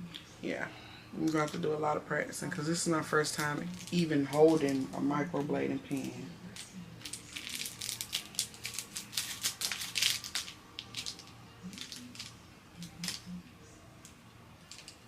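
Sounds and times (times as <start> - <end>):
plastic packaging crinkling: 3.3 - 4.9, 6.0 - 13.3
small parts clicking: 14.0 - 15.0.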